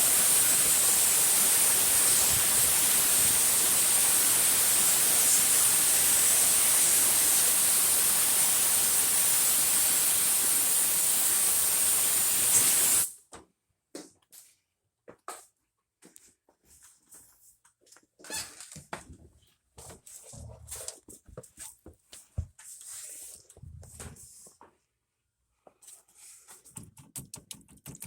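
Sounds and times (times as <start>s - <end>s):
steamer hissing: 0.0s - 13.1s.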